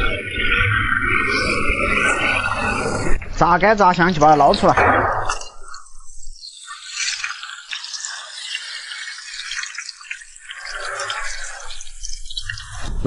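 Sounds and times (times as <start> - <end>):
onions sizzling in hot fat: 5.3 - 13.0.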